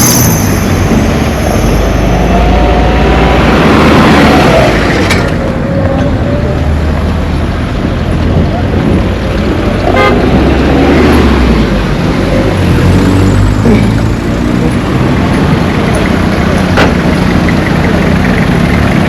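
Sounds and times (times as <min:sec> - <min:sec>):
road and wind noise: 0:00.0 - 0:19.0
vehicle engine running: 0:11.3 - 0:19.0.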